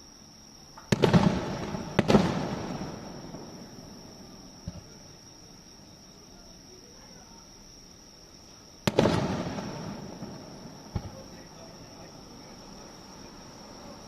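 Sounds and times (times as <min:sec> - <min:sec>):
faint firework thump: 0:00.7 - 0:05.2, 0:08.5 - 0:12.1.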